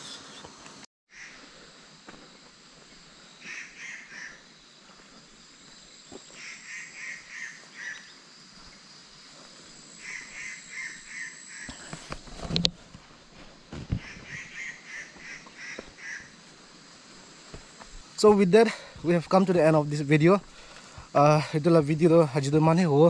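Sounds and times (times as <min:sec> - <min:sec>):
insect drone: 0:00.0 - 0:23.0
bird calling: 0:01.1 - 0:01.5, 0:03.4 - 0:04.5, 0:06.1 - 0:08.2, 0:09.9 - 0:12.2, 0:13.9 - 0:16.5.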